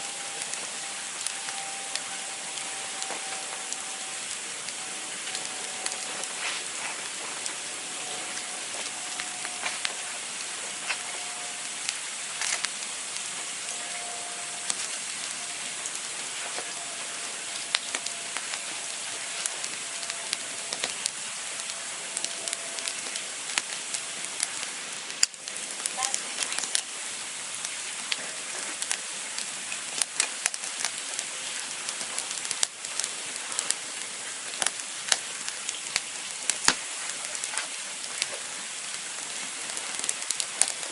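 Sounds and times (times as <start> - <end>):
faint wavering whistle: 0.0 - 11.7, 13.4 - 23.3
campfire crackling and popping: 0.0 - 40.9.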